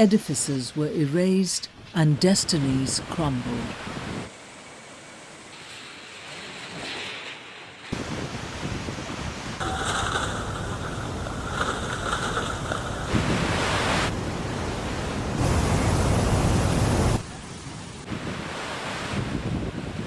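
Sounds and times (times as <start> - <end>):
rushing floodwater: 2.1 - 20.0
wind noise: 3.0 - 4.3, 7.9 - 17.3, 18.0 - 20.0.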